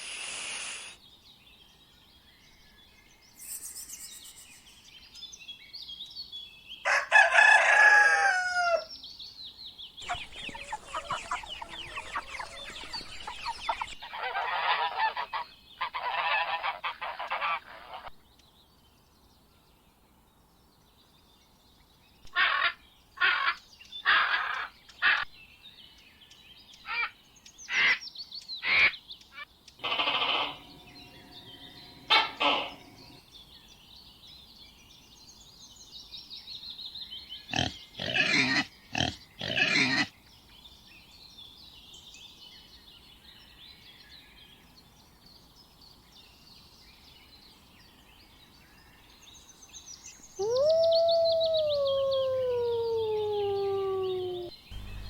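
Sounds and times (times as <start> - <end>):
birds chirping faintly: 0.0 - 8.0, 8.6 - 55.0
short loud animal calls: 29.8 - 33.2.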